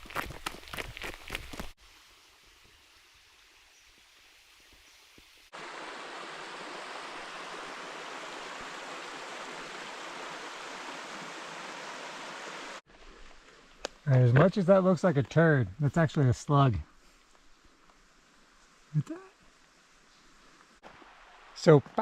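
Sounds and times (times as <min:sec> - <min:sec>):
rush of falling water: 0:01.8 - 0:12.8, 0:18.0 - 0:22.0
faint outdoor hush: 0:12.7 - 0:22.0.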